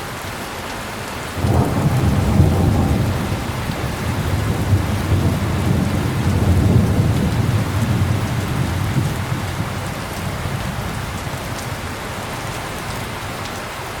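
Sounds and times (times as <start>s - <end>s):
heavy rain: 0.0s - 14.0s
distant thunder rumbling: 1.4s - 12.3s.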